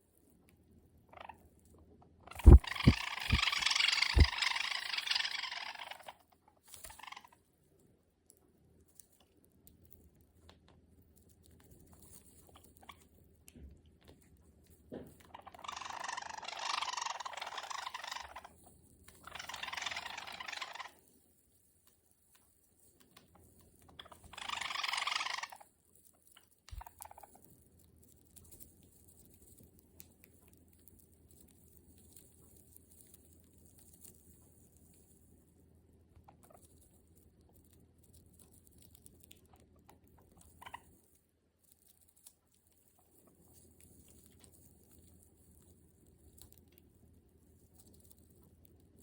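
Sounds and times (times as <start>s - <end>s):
beak clicks: 2.3s - 6.1s, 26.7s - 27.3s
bird crunching a treat: 2.3s - 49.0s.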